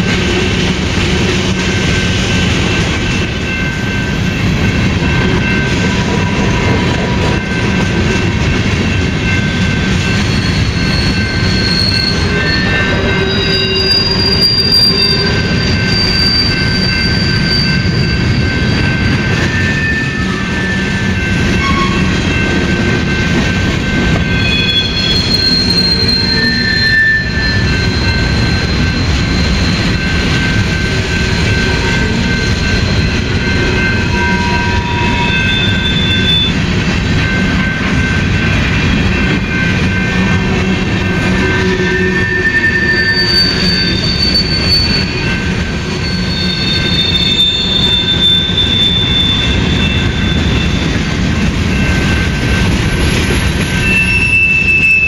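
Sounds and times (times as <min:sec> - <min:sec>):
train wheels rumbling on rails: 0:00.0 - 0:55.0
high wheel squeal: 0:10.0 - 0:22.1, 0:24.2 - 0:36.6, 0:39.6 - 0:51.0, 0:51.8 - 0:55.0.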